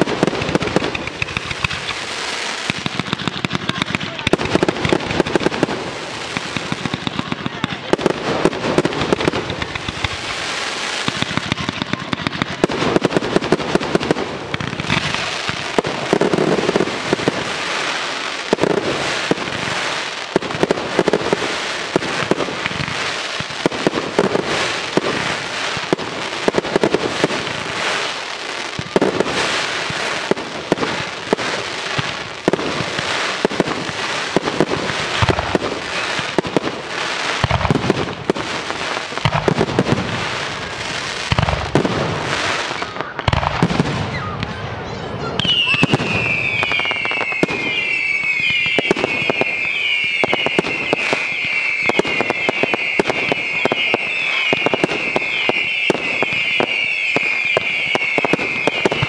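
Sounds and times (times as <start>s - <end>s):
sharp firework bangs: 0.0s - 17.9s, 28.7s - 44.6s
fireworks bursting and crackling: 0.0s - 59.0s.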